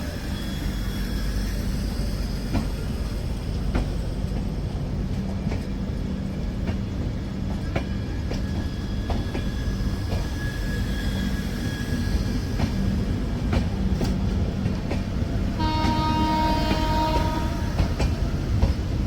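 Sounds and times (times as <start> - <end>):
train rumbling on track: 0.0 - 19.0
train horn: 15.5 - 18.1.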